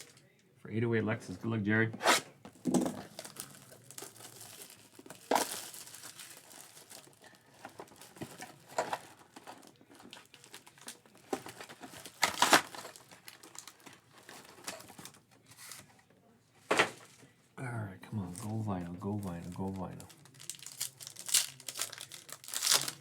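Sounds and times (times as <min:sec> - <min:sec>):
plastic tearing: 0:02.0 - 0:15.8, 0:19.1 - 0:23.0
plastic wrapping crinkling: 0:02.6 - 0:15.8, 0:18.2 - 0:23.0.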